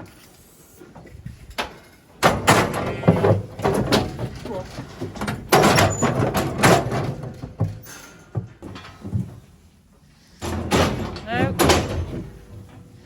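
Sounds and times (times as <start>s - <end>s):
metal gates clanging: 10.4s - 12.6s.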